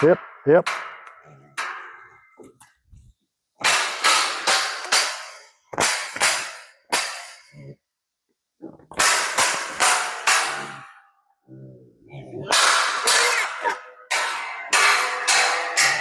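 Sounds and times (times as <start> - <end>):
hogs crashing into steel panels: 3.6 - 7.5, 8.9 - 11.0, 12.4 - 16.0.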